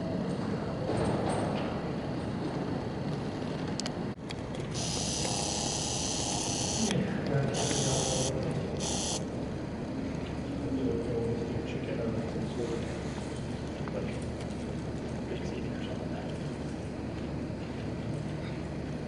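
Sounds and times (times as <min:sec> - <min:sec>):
high hissing screeching: 0:04.8 - 0:06.9, 0:07.6 - 0:09.2.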